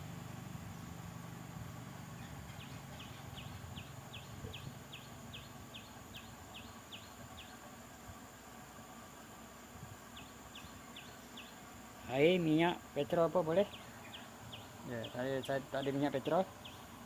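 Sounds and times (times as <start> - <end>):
faint low hum: 0.0 - 17.0
bird chirping: 2.1 - 7.7, 10.1 - 12.6, 13.2 - 17.0.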